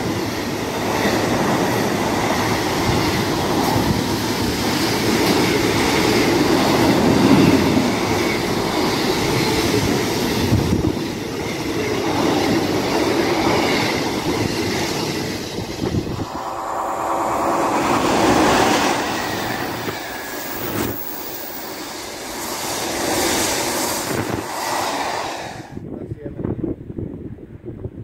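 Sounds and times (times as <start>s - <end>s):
freight train rattling past: 0.0s - 25.8s
steady ringing tone: 13.8s - 22.2s.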